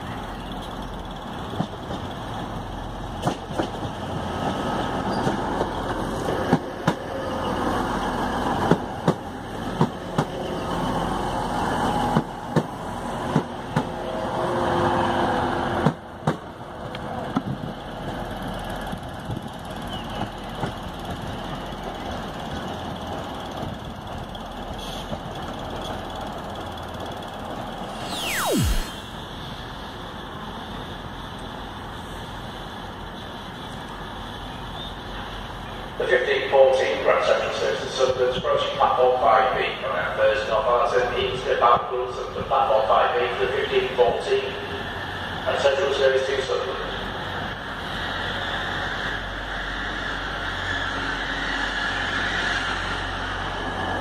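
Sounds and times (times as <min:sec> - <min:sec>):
train running through station: 0:00.0 - 0:54.0
falling swoosh effect: 0:27.7 - 0:29.6.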